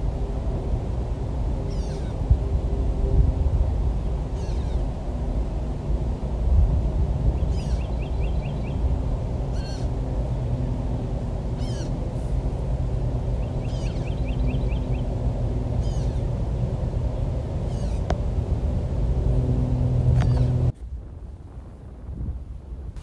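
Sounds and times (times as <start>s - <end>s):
steady low rumble: 0.0s - 23.0s
wild birds calling: 1.6s - 2.2s, 4.3s - 4.9s, 7.4s - 10.1s, 11.5s - 12.2s, 13.2s - 18.2s, 19.8s - 20.7s.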